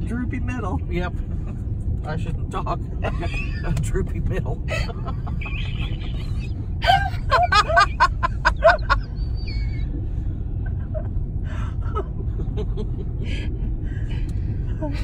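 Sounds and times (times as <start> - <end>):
person laughing: 4.7 - 9.9.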